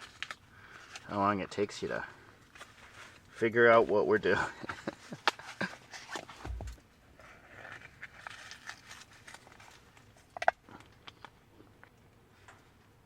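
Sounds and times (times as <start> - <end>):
soft rustling: 0.0 - 10.2.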